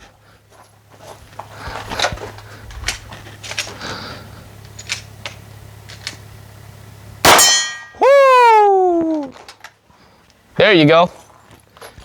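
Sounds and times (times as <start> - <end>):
gear clicks and rustles: 0.0 - 6.4, 9.3 - 12.0.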